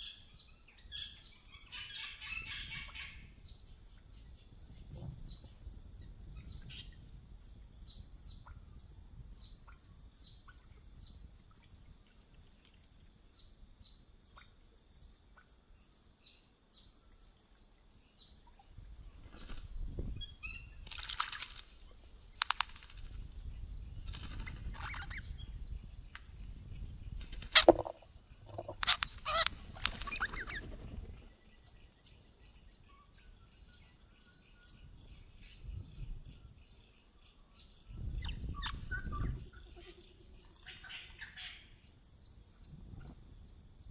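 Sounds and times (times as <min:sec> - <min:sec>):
harsh screechy bird calls: 0:27.3 - 0:30.7.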